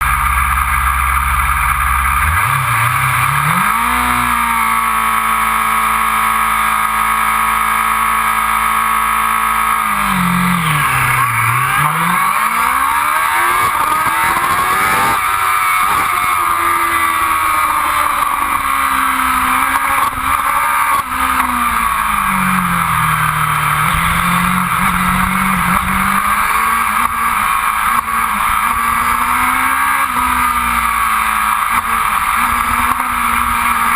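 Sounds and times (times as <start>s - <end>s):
racing motorcycle engine revving: 0.0s - 33.9s.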